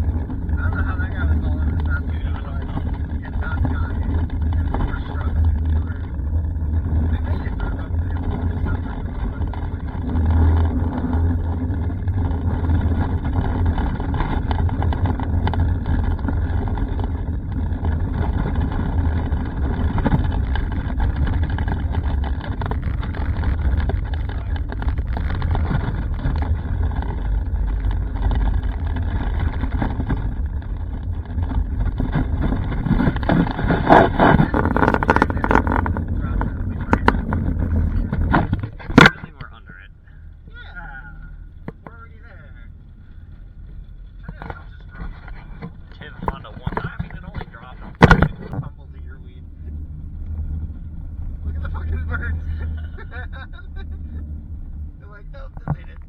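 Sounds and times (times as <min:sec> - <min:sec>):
car road noise rumble: 0:00.0 - 0:56.0
knocks and rattles from bumps: 0:43.7 - 0:49.1.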